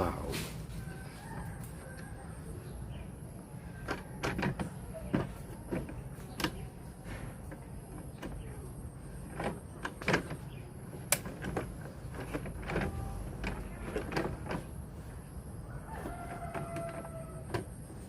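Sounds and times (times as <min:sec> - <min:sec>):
plastic parts scraping: 0:03.8 - 0:15.2.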